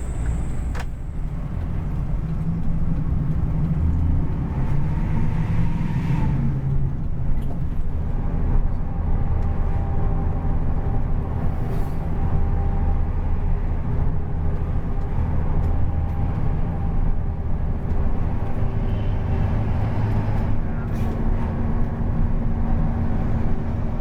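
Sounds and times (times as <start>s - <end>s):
diesel engine droning: 0.0s - 7.0s.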